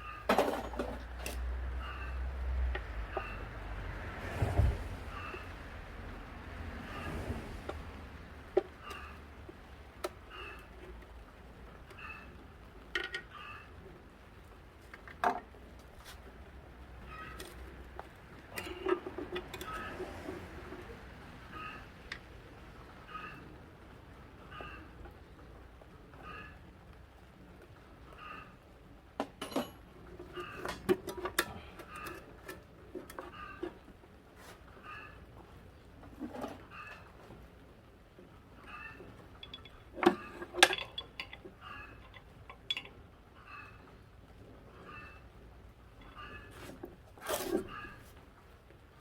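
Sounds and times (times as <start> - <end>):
metal tools clinking and knocking: 18.5 - 19.9, 29.2 - 33.8, 38.7 - 43.7, 46.0 - 46.6
metal tools clinking: 38.7 - 43.7.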